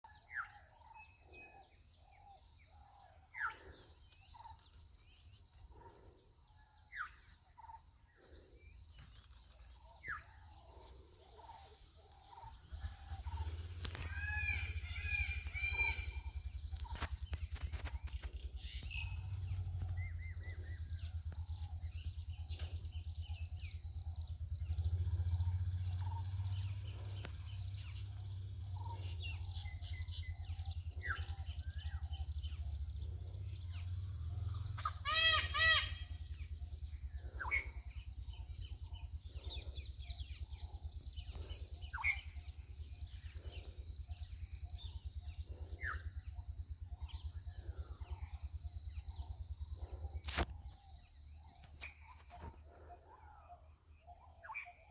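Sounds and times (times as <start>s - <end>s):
birds chirping: 0.0s - 54.9s
steady low rumble: 8.1s - 54.9s
peacock calling: 9.9s - 53.6s.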